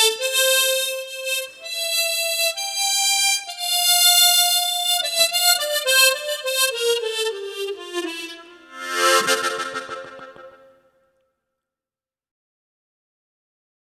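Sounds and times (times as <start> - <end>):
tremolo harmonica melody: 0.0 - 10.8.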